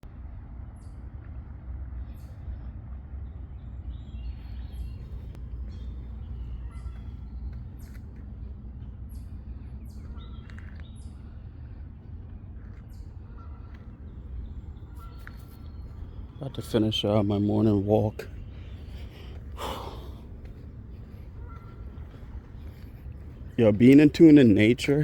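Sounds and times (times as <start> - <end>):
steady low rumble: 0.1 - 25.0
songbirds chirping: 2.0 - 25.0.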